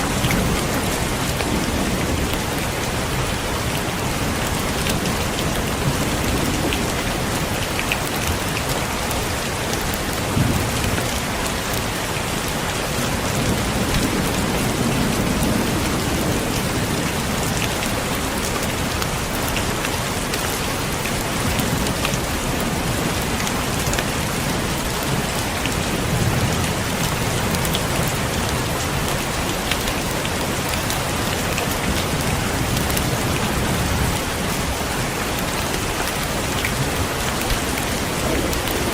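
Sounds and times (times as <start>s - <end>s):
heavy rain falling: 0.0s - 38.9s
thunder rumbling: 36.4s - 38.9s.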